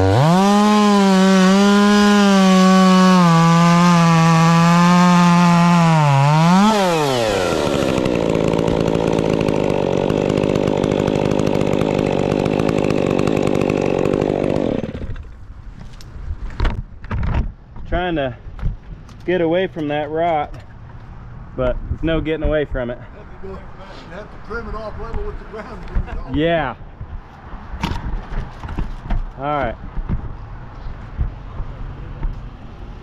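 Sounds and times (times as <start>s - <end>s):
chainsaw revving: 0.0s - 15.3s.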